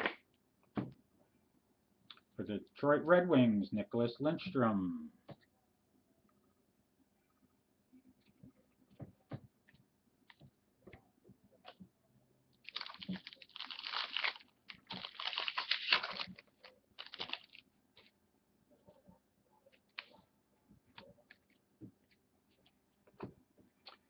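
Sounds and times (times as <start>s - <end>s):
cards rustling and crinkling: 12.7s - 18.1s.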